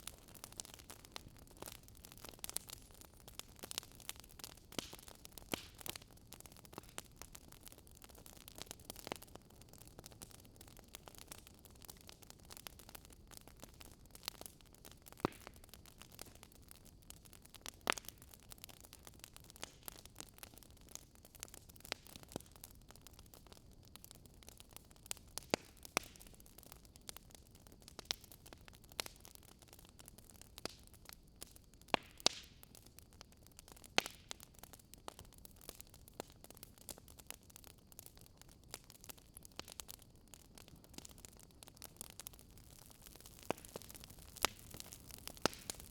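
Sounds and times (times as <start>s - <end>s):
wood fire crackling: 0.0s - 45.9s
soft fire hiss: 33.9s - 45.9s.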